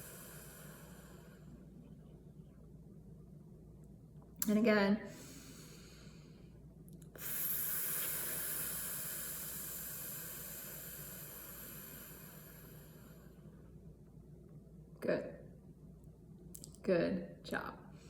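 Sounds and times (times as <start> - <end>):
woman's hissing exhale: 0.0 - 1.6, 7.2 - 13.3.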